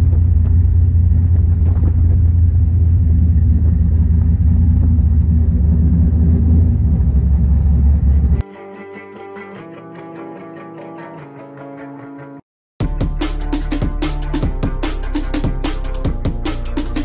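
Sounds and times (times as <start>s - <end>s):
car engine rumbling at low revs: 0.0s - 8.4s.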